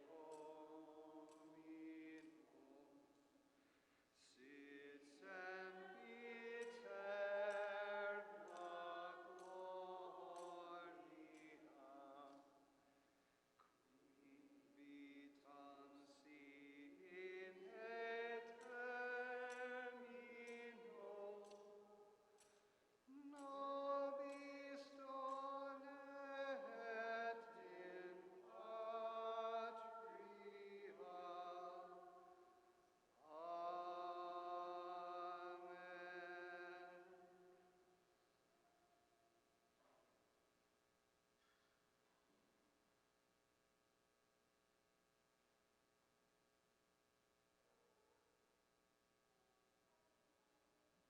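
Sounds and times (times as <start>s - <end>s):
chant-like church singing: 0.0s - 3.5s, 4.2s - 12.8s, 13.6s - 38.5s.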